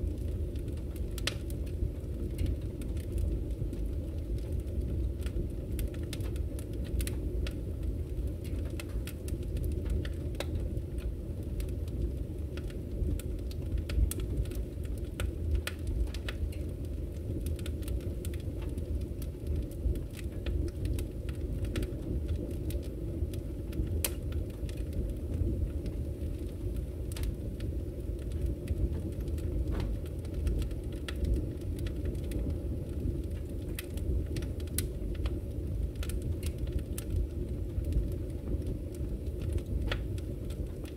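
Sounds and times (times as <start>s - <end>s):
fire crackling: 0.0s - 40.9s
low rumble of flames: 0.0s - 40.9s
sharp pops and snaps: 8.5s - 11.1s, 23.8s - 24.9s, 39.4s - 40.9s.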